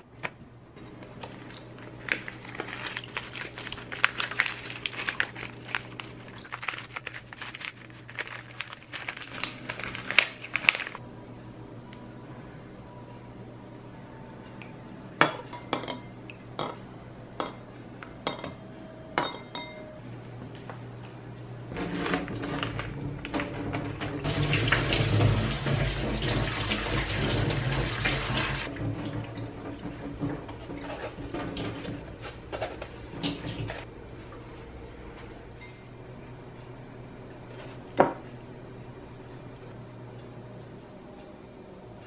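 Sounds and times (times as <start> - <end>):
metal spoon clinking ceramic bowl: 19.2 - 19.9.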